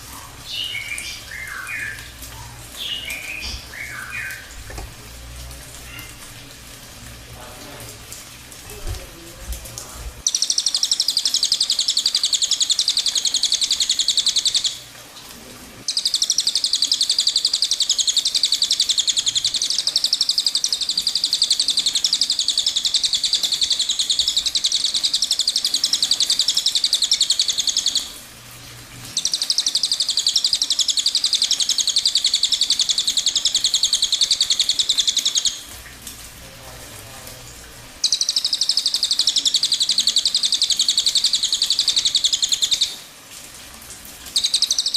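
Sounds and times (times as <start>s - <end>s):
songbird high-pitched trill: 0.5s - 2.1s, 2.8s - 4.5s, 10.3s - 14.8s, 15.9s - 28.2s, 29.2s - 35.6s, 38.0s - 43.0s, 44.4s - 44.9s.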